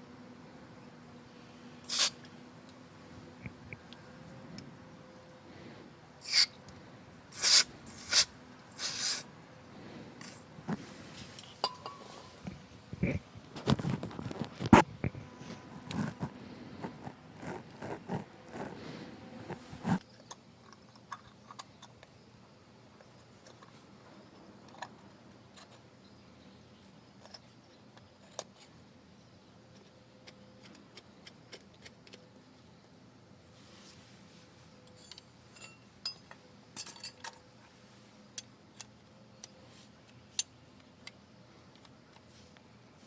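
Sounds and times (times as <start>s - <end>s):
metal parts and tools clinking: 11.4s - 12.4s, 34.9s - 37.5s.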